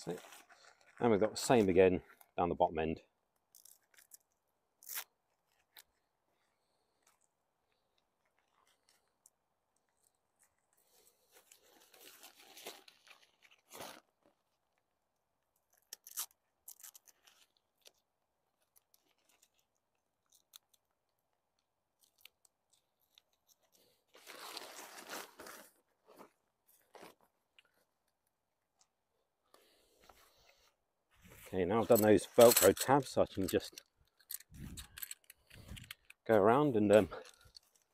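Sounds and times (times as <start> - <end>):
tent fabric rustling: 0.0 - 1.7, 24.1 - 27.2
velcro ripping: 4.8 - 5.9, 11.9 - 14.0, 15.8 - 17.5, 24.1 - 27.3.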